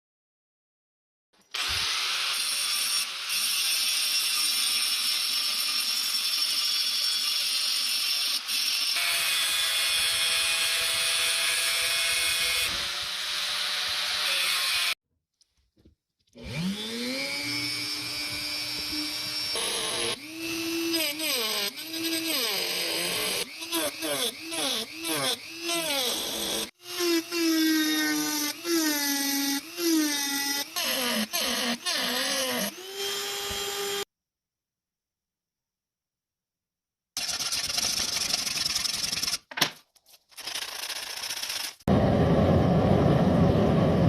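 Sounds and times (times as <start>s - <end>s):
electric power tool whining: 16.4s - 28.8s, 29.4s - 34.1s.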